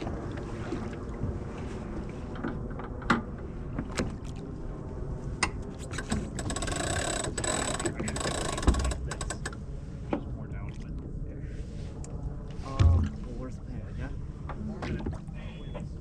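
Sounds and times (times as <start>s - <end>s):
sailboat winch ratcheting: 5.9s - 9.6s.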